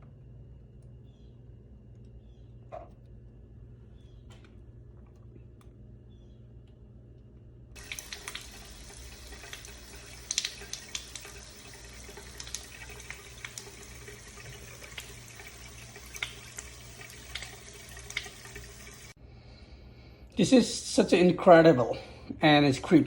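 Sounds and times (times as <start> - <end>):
tap water running into sink: 7.8 - 19.2.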